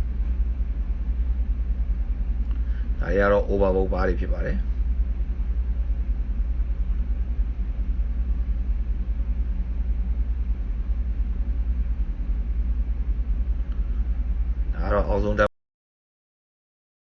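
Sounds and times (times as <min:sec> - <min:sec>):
engine room machinery rumbling: 0:00.0 - 0:15.5.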